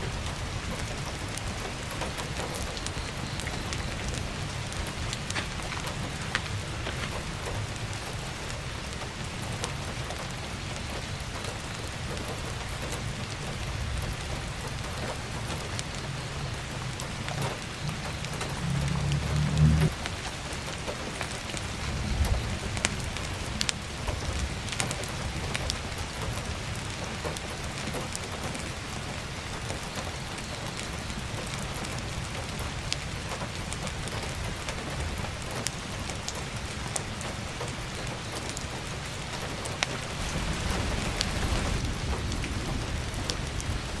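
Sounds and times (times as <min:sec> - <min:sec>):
heavy rain on a roof: 0:00.0 - 0:44.0
wood fire crackling: 0:00.0 - 0:44.0
low rumble: 0:16.3 - 0:20.1.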